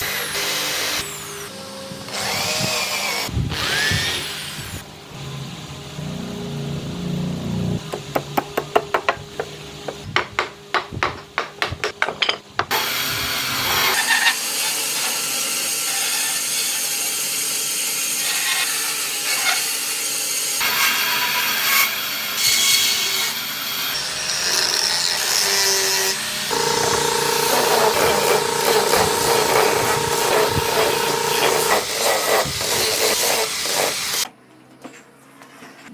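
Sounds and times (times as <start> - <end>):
taps on wood: 7.9 - 12.7
cutting or sanding wood: 12.7 - 23.4, 25.3 - 34.3.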